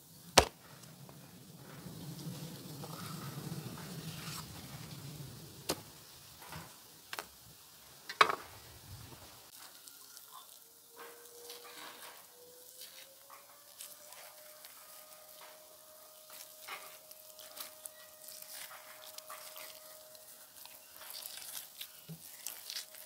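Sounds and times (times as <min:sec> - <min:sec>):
pork sizzling in fat: 0:01.6 - 0:23.0.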